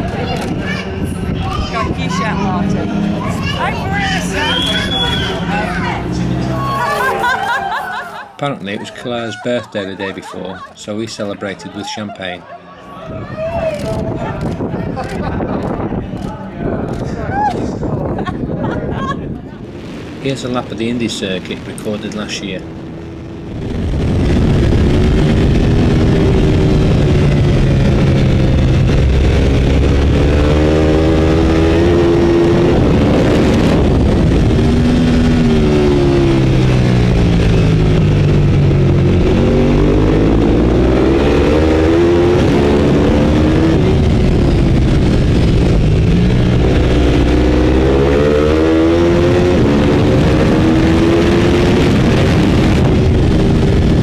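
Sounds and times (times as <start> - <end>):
race motorcycle engine revving: 0.0 - 8.8, 19.9 - 54.0
rush of wind: 0.0 - 54.0.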